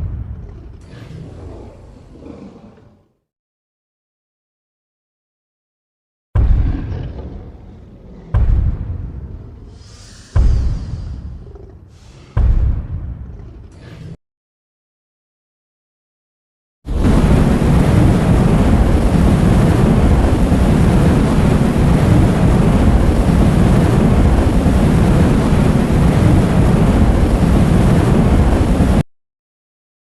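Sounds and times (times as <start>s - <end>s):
loud steady rumbling: 6.4s - 13.8s, 16.9s - 29.0s.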